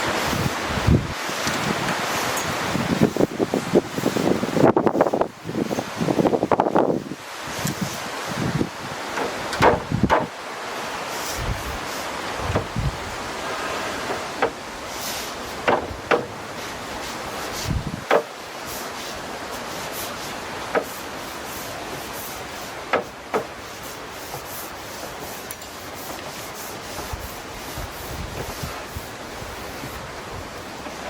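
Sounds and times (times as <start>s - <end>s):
brush swishing across wood: 7.5s - 31.0s.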